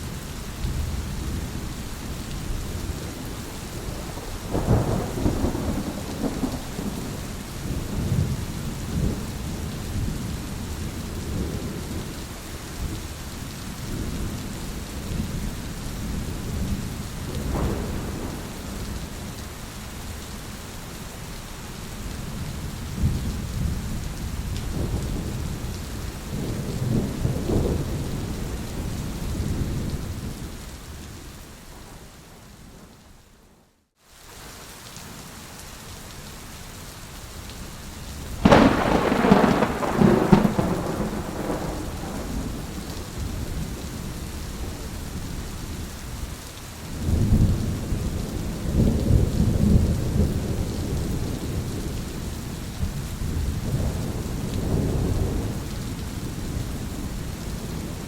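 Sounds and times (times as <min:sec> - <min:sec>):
steady rain: 0:00.0 - 0:58.0
rolling thunder: 0:02.9 - 0:10.3, 0:16.1 - 0:19.1, 0:38.4 - 0:44.8, 0:47.0 - 0:58.0.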